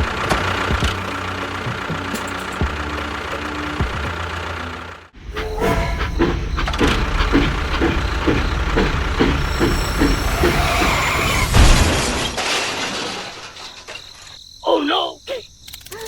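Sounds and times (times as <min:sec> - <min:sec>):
mechanical running noise: 0:05.2 - 0:12.1
regular mechanical knock: 0:05.3 - 0:14.1
loud thump: 0:06.0 - 0:12.4.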